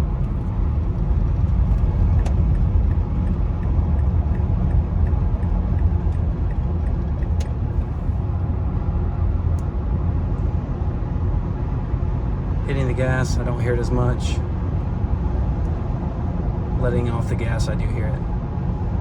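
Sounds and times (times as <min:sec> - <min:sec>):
road and engine rumble: 0:00.0 - 0:19.0
faint regular ticking: 0:00.2 - 0:08.2.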